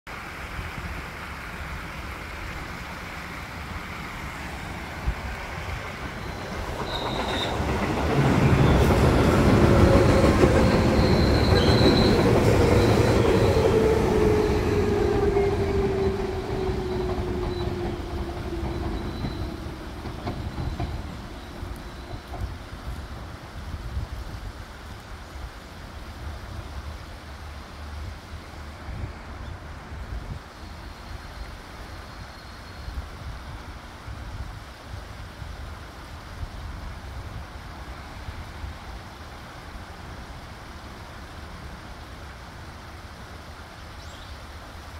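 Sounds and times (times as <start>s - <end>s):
electric train rumbling: 0.1s - 32.3s
high wheel squeals: 6.1s - 22.3s.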